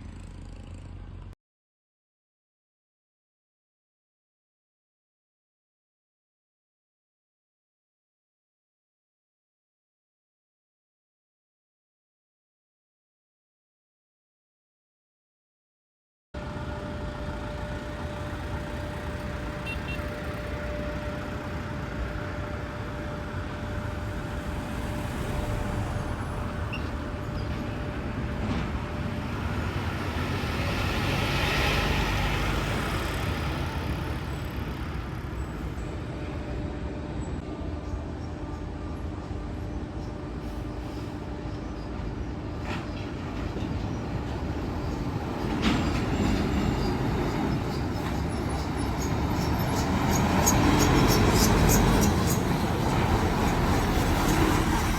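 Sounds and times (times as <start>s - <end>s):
trucks and buses passing: 0.0s - 1.4s, 16.4s - 54.9s.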